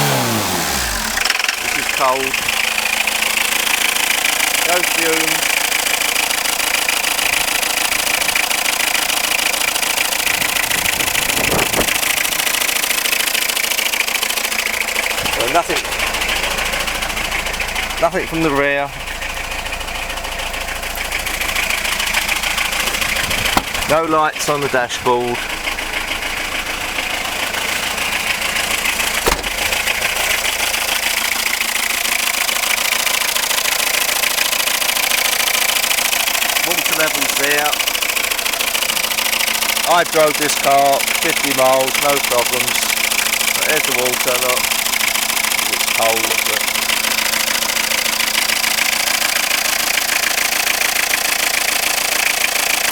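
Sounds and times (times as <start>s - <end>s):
car engine idling with clatter: 0.0s - 52.9s
sharp knock: 23.4s - 23.9s, 29.2s - 29.7s.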